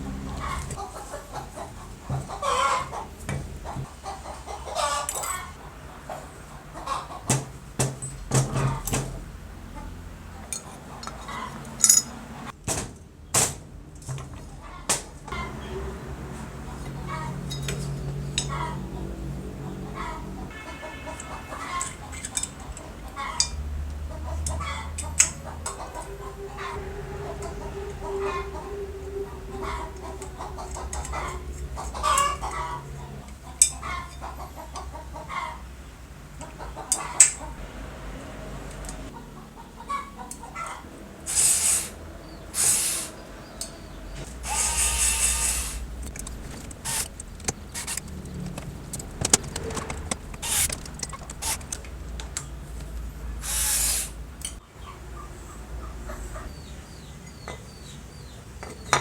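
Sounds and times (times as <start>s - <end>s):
metal tools clinking together: 10.5s - 12.2s, 17.4s - 18.5s.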